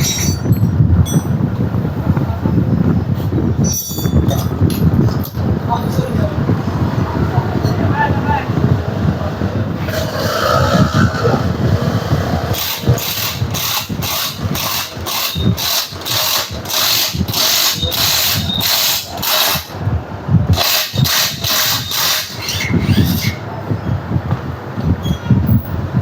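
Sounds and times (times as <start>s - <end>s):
hand tool rasping metal: 12.5s - 19.8s, 20.5s - 23.4s.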